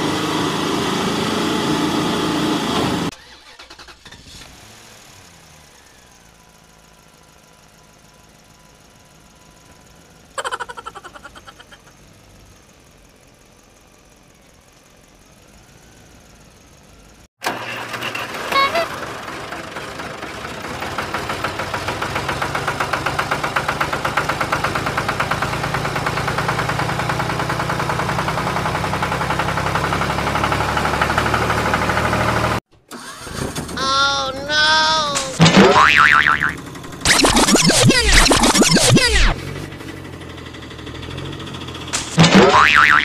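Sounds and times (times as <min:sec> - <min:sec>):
vehicle engine chugging: 0:05.4 - 0:17.3, 0:18.3 - 0:32.6, 0:35.4 - 0:43.0.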